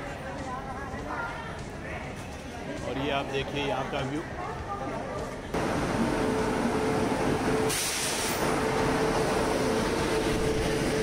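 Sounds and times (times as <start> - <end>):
train rolling past: 5.6 - 11.0
brief hiss: 7.6 - 8.5.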